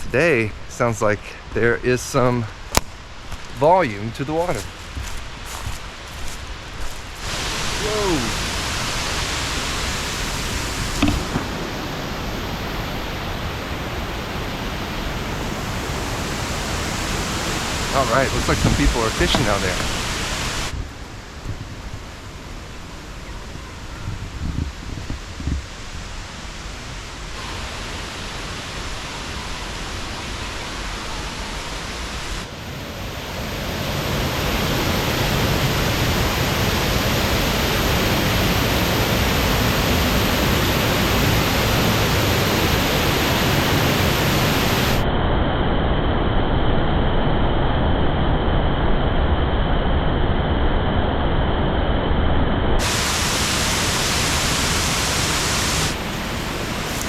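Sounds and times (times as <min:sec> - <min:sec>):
waterfall rushing: 0:03.4 - 0:20.8, 0:25.8 - 0:45.0, 0:52.8 - 0:57.0.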